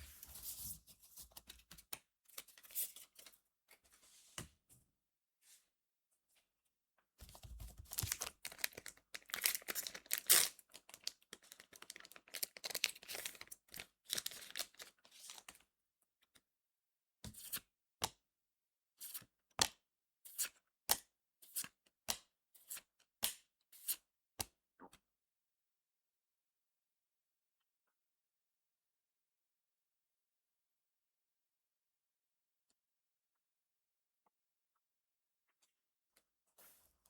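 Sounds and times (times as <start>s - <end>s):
wrapper crinkling and tearing: 7.9s - 14.9s.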